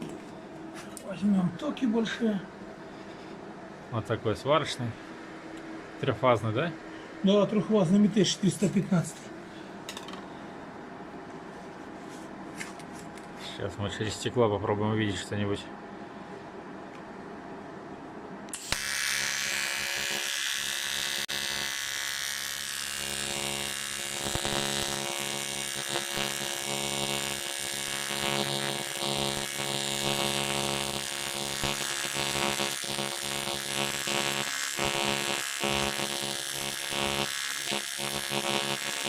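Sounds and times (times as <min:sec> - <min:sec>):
welding arc buzzing and hissing: 0:18.5 - 0:39.0.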